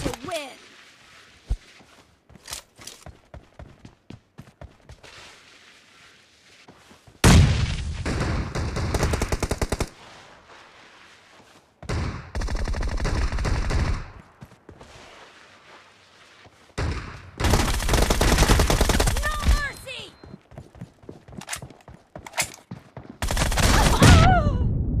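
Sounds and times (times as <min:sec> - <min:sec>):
quiet game background: 0:00.0 - 0:25.0
video game automatic gunfire: 0:17.4 - 0:19.6, 0:23.2 - 0:24.0.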